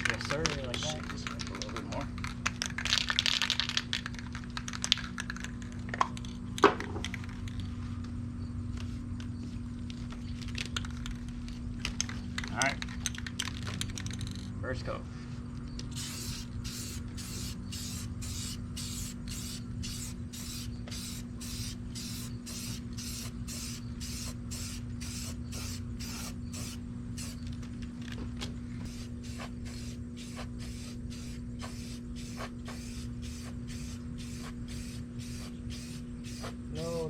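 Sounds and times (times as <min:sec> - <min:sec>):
steady low hum: 0:00.0 - 0:37.0
spray paint hissing in bursts: 0:15.9 - 0:27.5, 0:28.8 - 0:37.0.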